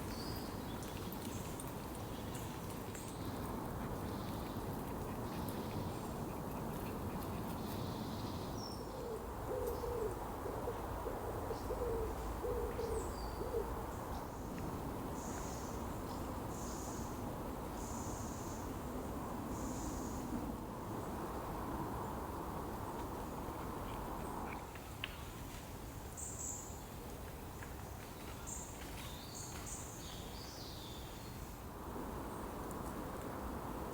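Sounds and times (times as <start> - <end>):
bird low hooting call: 8.9 - 13.8.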